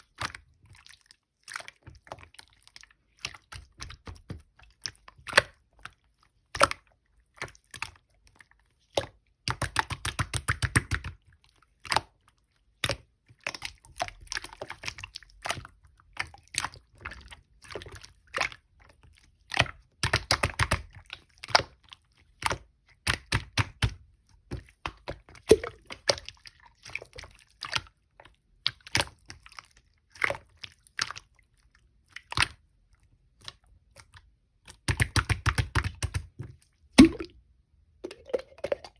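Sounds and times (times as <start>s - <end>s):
slime squishing with crackling: 0.0s - 37.3s.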